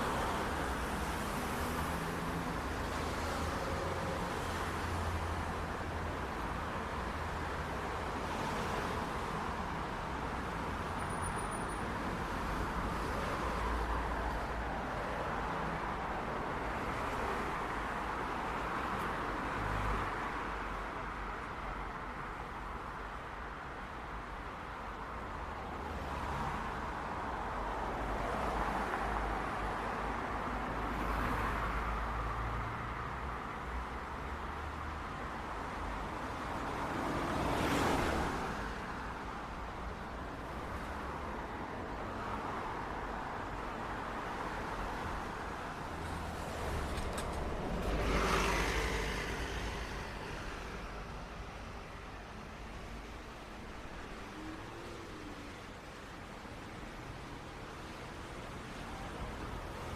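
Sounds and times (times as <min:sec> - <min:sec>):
city traffic noise: 0:00.0 - 0:59.9
vehicles passing close: 0:27.2 - 0:59.9.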